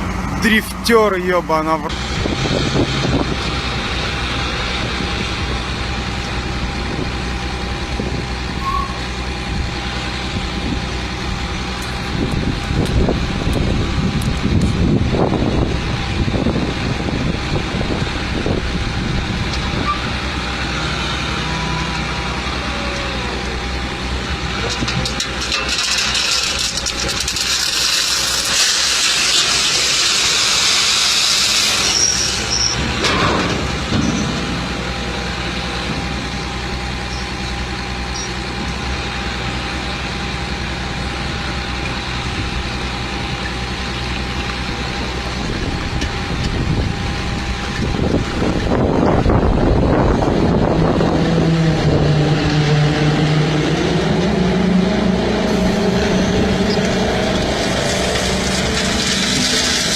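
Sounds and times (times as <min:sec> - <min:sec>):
truck engine running: 0:00.0 - 0:59.9.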